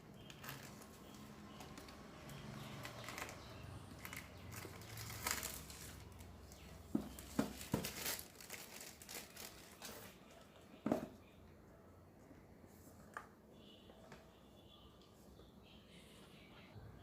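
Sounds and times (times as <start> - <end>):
packaging crinkling and rustling: 0.2 - 2.0, 2.6 - 10.2.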